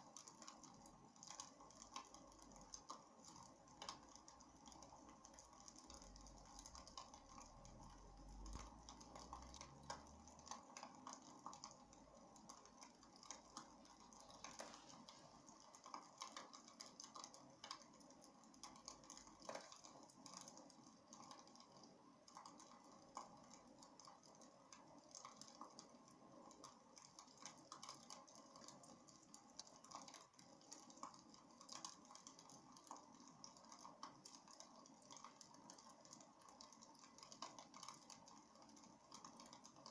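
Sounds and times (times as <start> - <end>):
wood fire crackling: 10.3 - 39.9.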